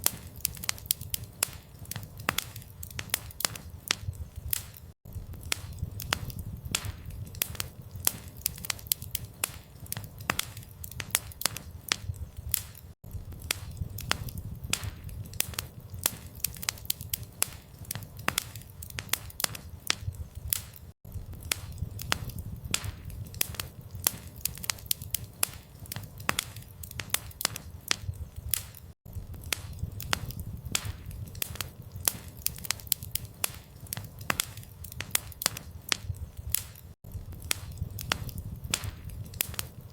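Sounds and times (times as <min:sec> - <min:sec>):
campfire pops and snaps: 0:00.0 - 0:39.9
low rumble of flames: 0:00.0 - 0:39.9.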